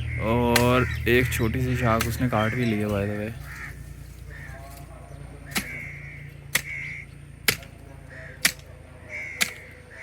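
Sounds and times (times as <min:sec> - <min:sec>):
axe chopping branch: 0:05.5 - 0:05.8, 0:06.5 - 0:06.8, 0:07.4 - 0:07.8, 0:08.4 - 0:08.7, 0:09.4 - 0:09.8.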